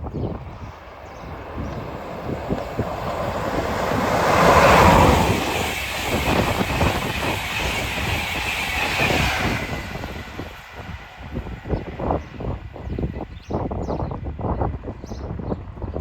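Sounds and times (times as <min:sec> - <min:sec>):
train passing with rushing rumble: 0:00.0 - 0:16.0.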